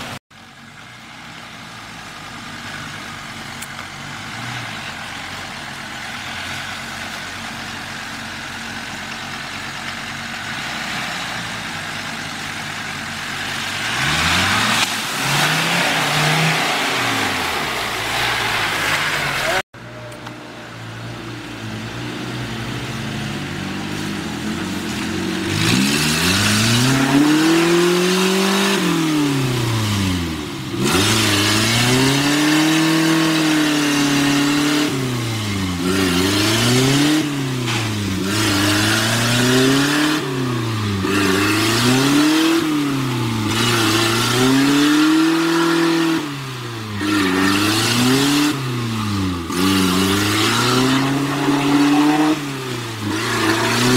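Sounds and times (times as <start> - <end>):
vehicle engine revving hard: 13.4 - 19.6, 22.6 - 53.9.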